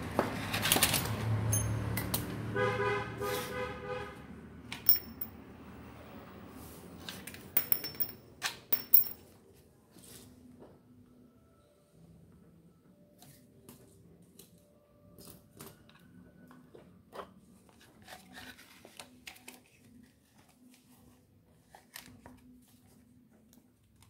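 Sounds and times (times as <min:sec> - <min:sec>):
small parts and tools clicking: 0:04.7 - 0:05.4, 0:07.0 - 0:09.2.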